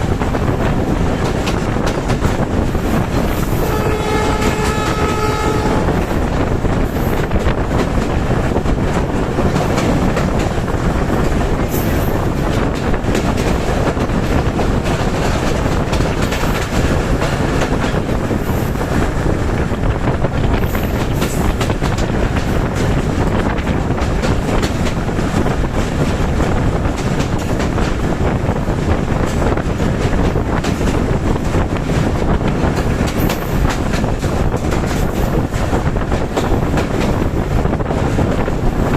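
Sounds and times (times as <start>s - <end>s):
train wheels rumbling on rails: 0.0s - 38.9s
train horn: 3.5s - 6.1s.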